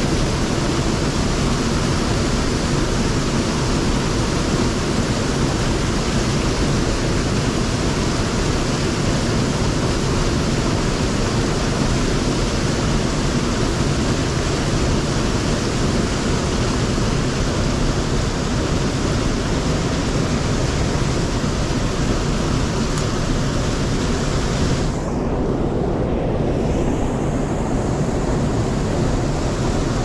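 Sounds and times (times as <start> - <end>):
mountain stream rushing: 0.0 - 30.0.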